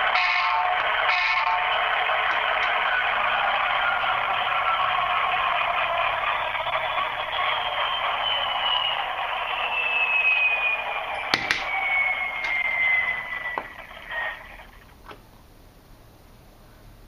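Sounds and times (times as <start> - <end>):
diesel engine whine winding down: 0.0 - 15.0.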